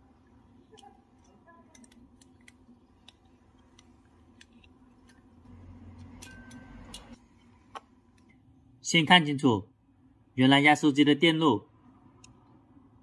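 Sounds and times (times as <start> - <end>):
small clicks and taps: 0.7 - 5.3.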